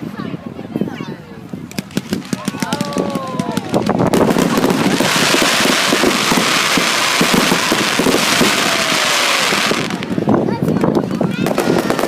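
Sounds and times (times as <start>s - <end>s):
fireworks crackling pops: 1.7s - 12.0s
fireworks hissing: 1.8s - 10.4s.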